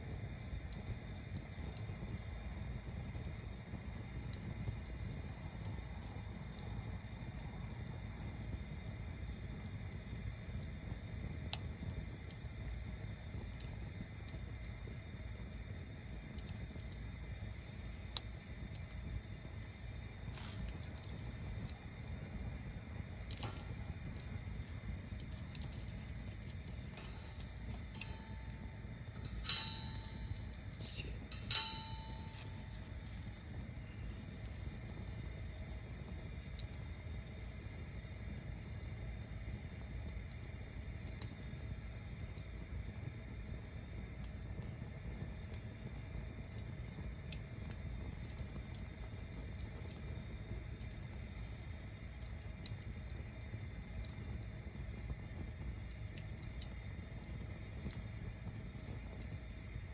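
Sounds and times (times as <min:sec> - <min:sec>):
bonfire burning with low rumble: 0:00.0 - 0:59.9
sharp ringing clink: 0:25.6 - 0:34.1.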